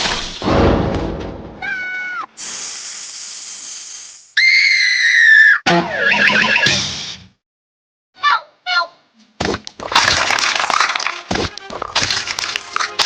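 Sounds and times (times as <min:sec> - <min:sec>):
squeaky cartoon voice: 0:08.2 - 0:09.0.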